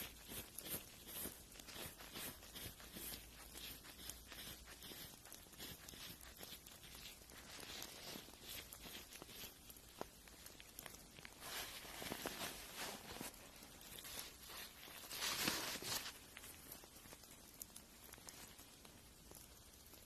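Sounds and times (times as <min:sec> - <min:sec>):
fingernail being filed: 0:00.0 - 0:09.6.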